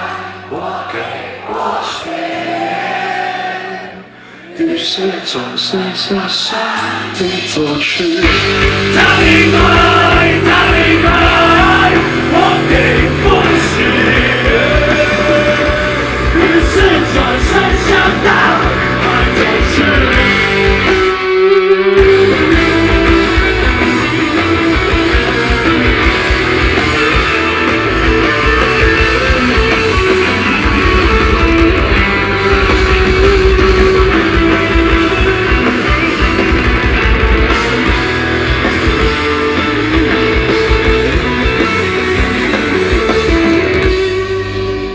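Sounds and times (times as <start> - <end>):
live rock band playing: 0.0 - 0.8, 1.5 - 44.9
double bass drum pedals: 8.2 - 21.2, 22.0 - 44.6.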